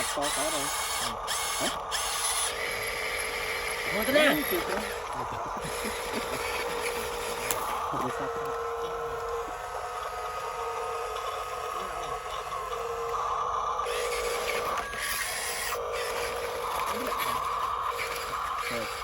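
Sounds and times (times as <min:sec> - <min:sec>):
small electric motor whining: 0:00.0 - 0:19.0.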